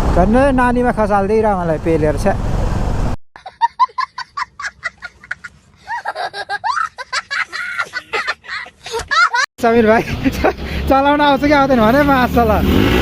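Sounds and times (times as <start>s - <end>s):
engine and road noise: 0.0s - 3.2s, 8.0s - 13.0s.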